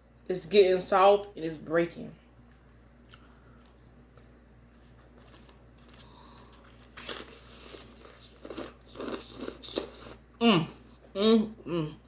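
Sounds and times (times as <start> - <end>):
crunching and crinkling while eating: 2.4 - 10.2.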